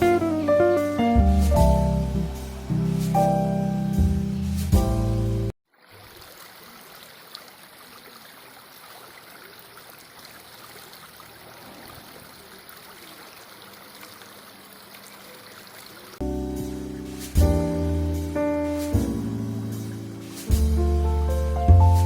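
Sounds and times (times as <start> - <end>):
background music: 0.0 - 5.5, 16.2 - 22.0
running water rushing: 0.0 - 22.0.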